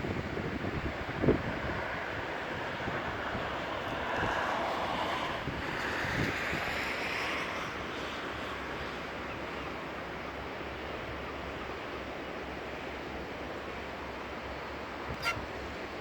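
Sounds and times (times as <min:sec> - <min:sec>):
wind rumble on microphone: 0:00.0 - 0:11.7
sea surf: 0:00.0 - 0:16.0.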